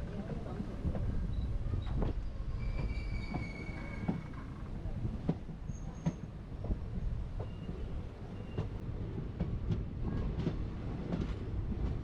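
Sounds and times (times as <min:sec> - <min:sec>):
train rumbling: 0:00.0 - 0:12.0
high wheel squeal: 0:02.5 - 0:04.4.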